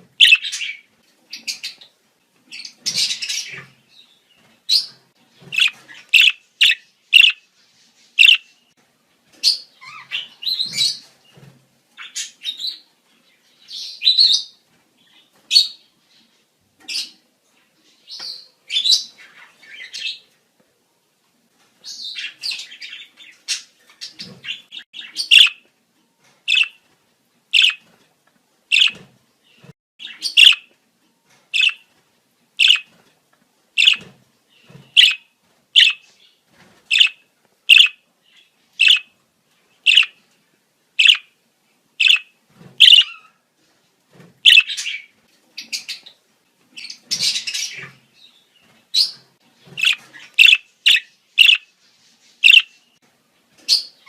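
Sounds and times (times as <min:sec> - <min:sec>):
budgerigars warbling chatter: 0:00.2 - 0:00.8, 0:05.5 - 0:07.4, 0:08.2 - 0:08.4, 0:24.1 - 0:25.6, 0:26.5 - 0:26.7, 0:27.6 - 0:27.8, 0:28.7 - 0:29.0, 0:30.0 - 0:30.6, 0:31.6 - 0:31.8, 0:32.6 - 0:32.9, 0:33.8 - 0:34.0, 0:35.0 - 0:35.2, 0:35.8 - 0:36.0, 0:36.9 - 0:38.0, 0:38.8 - 0:39.1, 0:39.9 - 0:40.2, 0:41.0 - 0:41.2, 0:42.0 - 0:43.2, 0:44.5 - 0:45.0, 0:49.8 - 0:51.6, 0:52.4 - 0:52.7
budgerigars chirping: 0:00.2 - 0:01.9, 0:02.6 - 0:03.7, 0:04.7 - 0:07.4, 0:08.2 - 0:08.5, 0:21.9 - 0:25.6, 0:26.5 - 0:26.8, 0:27.6 - 0:27.8, 0:28.7 - 0:29.0, 0:30.0 - 0:30.7, 0:31.6 - 0:31.8, 0:32.6 - 0:32.9, 0:33.8 - 0:34.1, 0:34.9 - 0:36.1, 0:36.9 - 0:38.0, 0:38.8 - 0:39.1, 0:39.9 - 0:40.2, 0:41.0 - 0:41.3, 0:42.0 - 0:43.3, 0:44.4 - 0:46.2, 0:49.0 - 0:51.7, 0:52.4 - 0:52.8.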